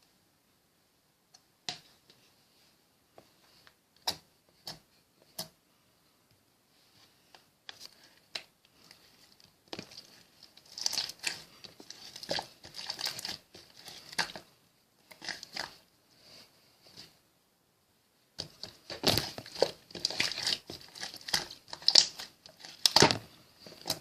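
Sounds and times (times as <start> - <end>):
slime crackling: 8.4 - 15.8, 18.4 - 24.0.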